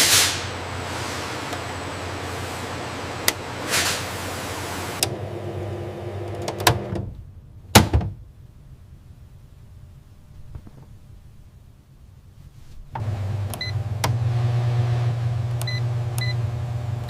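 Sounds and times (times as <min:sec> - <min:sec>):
factory machinery humming: 0:00.0 - 0:07.0.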